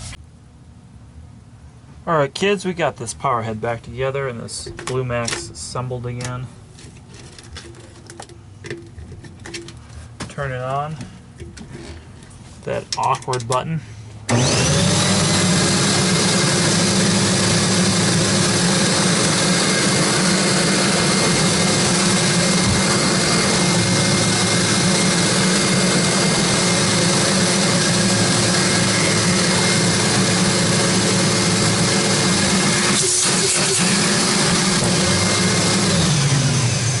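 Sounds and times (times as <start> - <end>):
vacuum cleaner running: 14.3 - 37.0.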